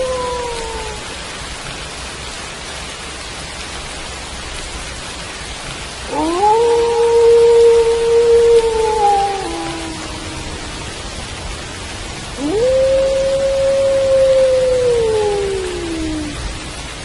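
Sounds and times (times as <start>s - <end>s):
wolf howling: 0.0s - 1.1s, 6.1s - 11.0s, 12.4s - 16.7s
steady rain: 0.0s - 17.0s.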